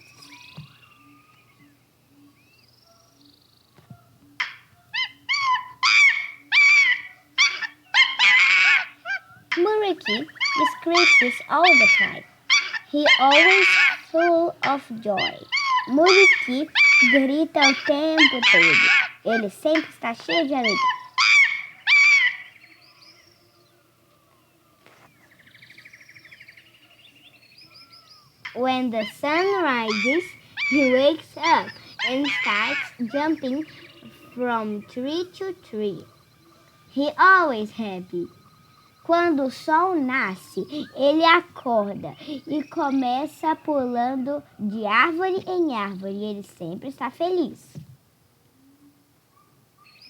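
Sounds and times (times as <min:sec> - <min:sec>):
faint whistling tones: 0:00.0 - 0:07.9, 0:22.5 - 0:41.6
bird trill: 0:00.0 - 0:47.8, 0:48.5 - 0:50.0
high-pitched animal yelps: 0:04.4 - 0:22.8, 0:28.4 - 0:36.2.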